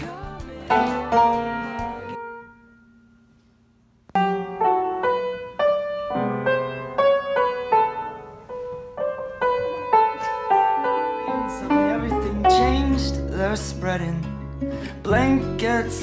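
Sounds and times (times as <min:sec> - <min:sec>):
song ending note: 0:00.7 - 0:02.7, 0:04.2 - 0:13.2
piano melody in ringing notes: 0:00.7 - 0:03.4, 0:04.2 - 0:13.5.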